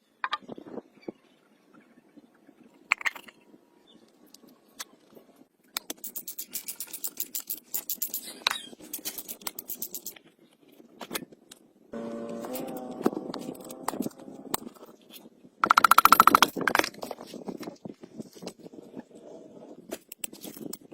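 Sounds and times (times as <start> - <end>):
sharp clicks or knocks: 15.6 - 17.0.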